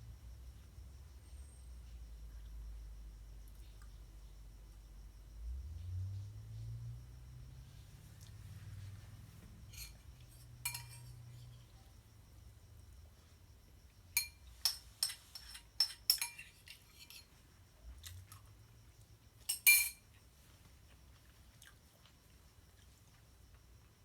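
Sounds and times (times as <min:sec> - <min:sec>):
cutlery clinking against a dish: 0:09.7 - 0:11.6, 0:14.2 - 0:17.3, 0:19.5 - 0:20.0.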